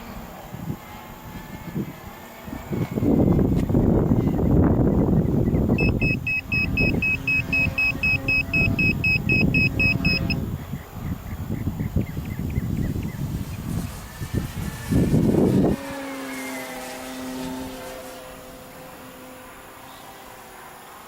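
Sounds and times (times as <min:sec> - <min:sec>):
wind buffeting microphone: 0:00.0 - 0:16.2
rapid electronic beeping: 0:05.4 - 0:10.4.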